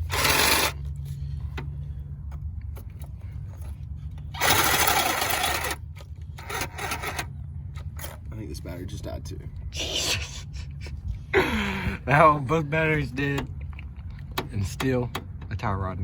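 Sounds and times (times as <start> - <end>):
reciprocating saw buzzing: 0.0 - 0.9, 4.3 - 5.8
saw cutting steel: 0.0 - 0.9, 4.4 - 5.8, 6.4 - 7.3.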